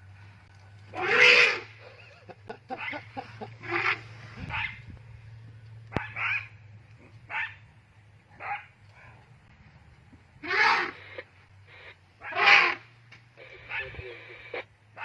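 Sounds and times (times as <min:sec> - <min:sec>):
animal barking calls: 0:00.9 - 0:02.1, 0:02.7 - 0:04.9, 0:05.9 - 0:07.7, 0:08.3 - 0:09.2, 0:10.4 - 0:15.0.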